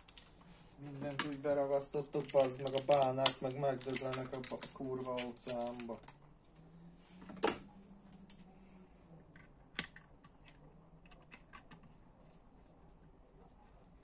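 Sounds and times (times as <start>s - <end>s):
small metal parts clicking: 2.2s - 6.2s.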